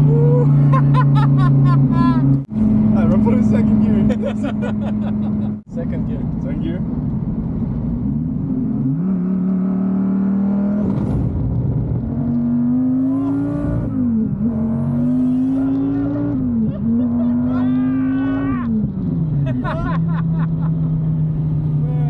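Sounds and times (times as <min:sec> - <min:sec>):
person shouting and laughing: 0:00.0 - 0:02.4, 0:16.6 - 0:18.8, 0:19.5 - 0:20.7
car engine accelerating hard: 0:00.0 - 0:22.0.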